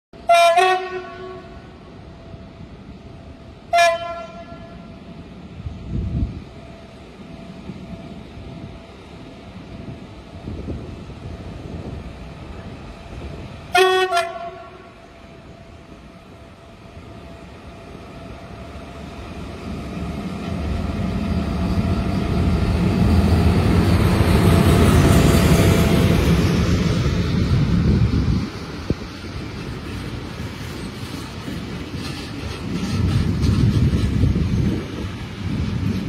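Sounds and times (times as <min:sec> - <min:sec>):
locomotive horn blast: 0:00.2 - 0:01.7, 0:03.7 - 0:04.9, 0:13.7 - 0:15.0
train wheels rumbling on rails: 0:00.2 - 0:36.0.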